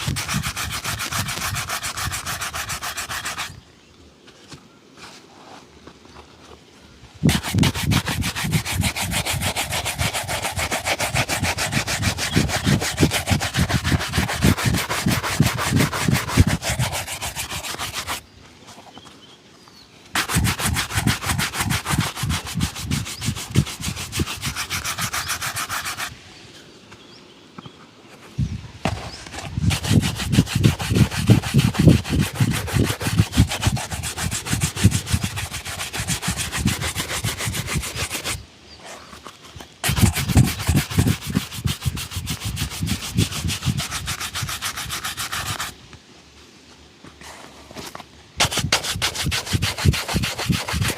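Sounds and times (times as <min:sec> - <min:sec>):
shoe being buffed: 0:00.0 - 0:03.6, 0:07.3 - 0:18.2, 0:20.2 - 0:26.1, 0:28.8 - 0:38.4, 0:39.0 - 0:45.8, 0:47.3 - 0:50.9.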